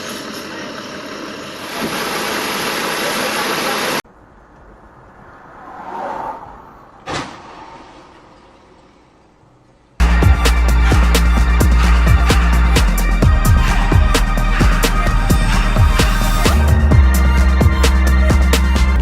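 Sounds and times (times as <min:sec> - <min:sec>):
moving car noise: 0:00.0 - 0:19.0
vehicle passing: 0:04.1 - 0:09.2.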